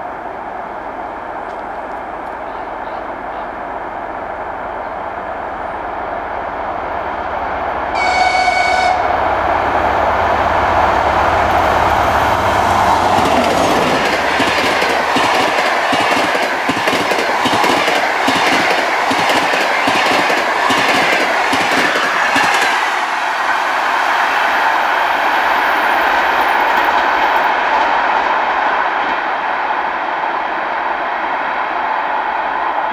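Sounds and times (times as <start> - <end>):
diesel locomotive engine rumbling: 0.0 - 28.6
train wheels clattering over rails: 7.7 - 29.5
locomotive horn blast: 7.9 - 9.8.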